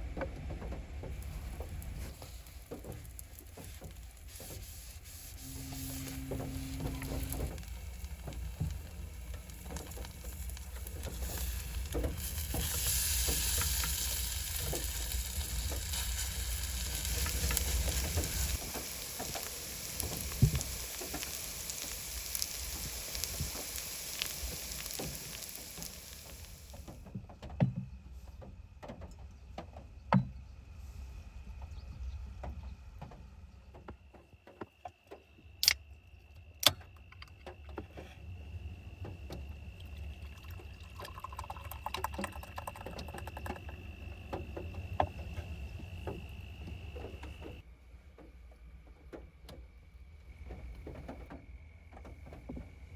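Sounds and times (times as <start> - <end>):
food sizzling in a pan: 1.4 - 26.9.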